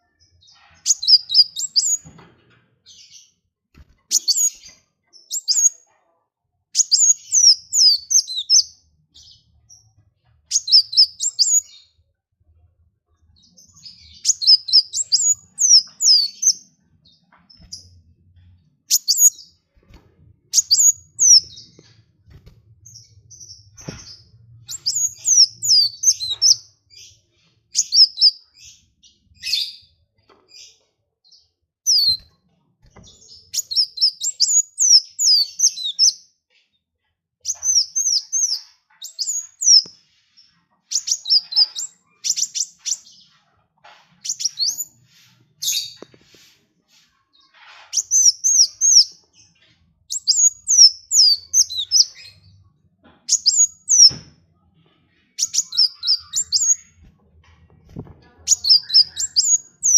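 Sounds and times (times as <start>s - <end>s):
songbird chirping: 0.0s - 6.0s, 6.7s - 36.4s, 37.4s - 59.9s.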